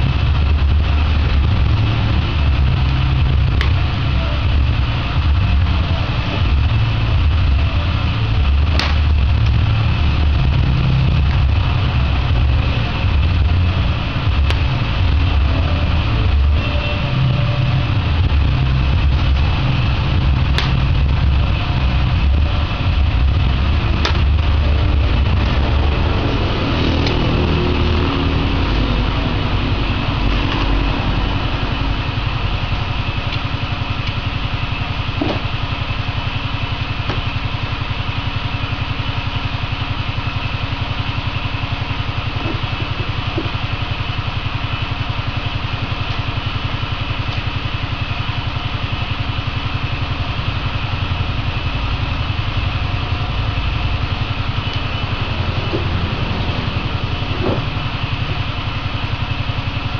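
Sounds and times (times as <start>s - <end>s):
machine drone with low pulse: 0.0s - 59.9s.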